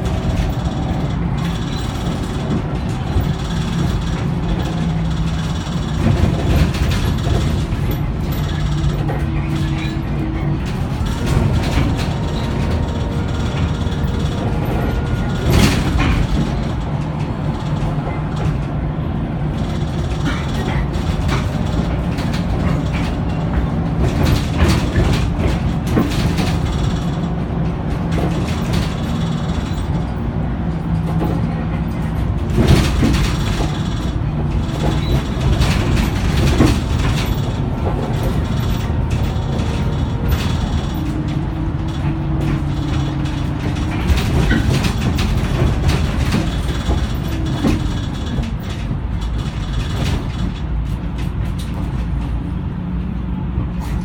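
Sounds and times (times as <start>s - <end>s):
bus diesel engine humming: 0.0s - 54.0s
interior panels rattling and clicking: 0.0s - 54.0s.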